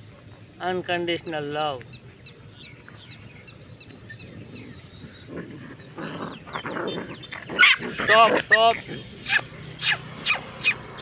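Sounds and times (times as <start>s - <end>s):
faint bird chirps: 9.2s - 11.0s
puppy growling and snuffling: 9.2s - 11.0s.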